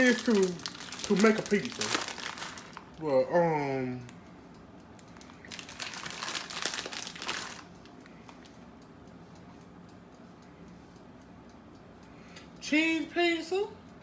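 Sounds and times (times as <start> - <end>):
plastic packaging crinkling: 0.0 - 3.0, 5.0 - 7.7.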